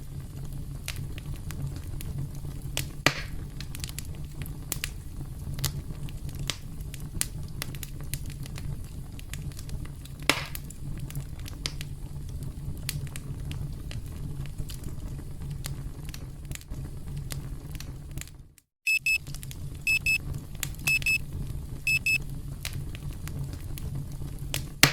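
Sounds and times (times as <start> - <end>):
campfire crackling: 0.0 - 18.4, 19.1 - 24.9
electronic alarm beeping: 18.9 - 19.2, 19.9 - 20.2, 20.9 - 21.2, 21.9 - 22.2.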